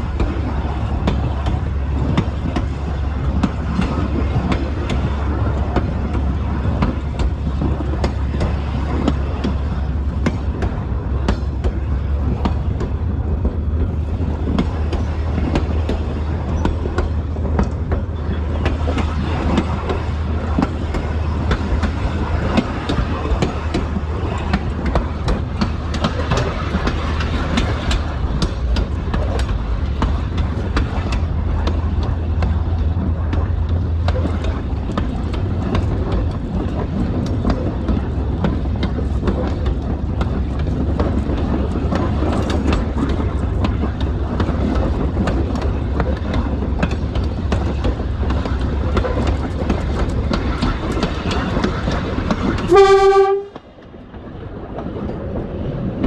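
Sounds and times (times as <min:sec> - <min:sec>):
diesel train engine drone: 0:00.0 - 0:56.0
train wheels clicking on track: 0:00.0 - 0:56.0.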